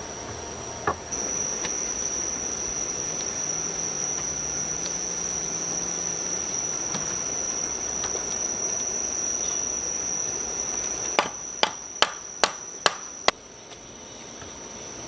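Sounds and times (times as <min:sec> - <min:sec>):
crickets chirring: 0:00.0 - 0:15.0
sharp knocks: 0:11.2 - 0:13.1.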